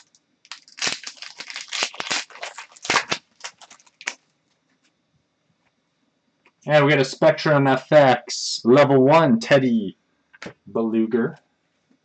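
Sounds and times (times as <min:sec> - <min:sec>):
trading cards rustling and clicking: 0:00.0 - 0:04.2.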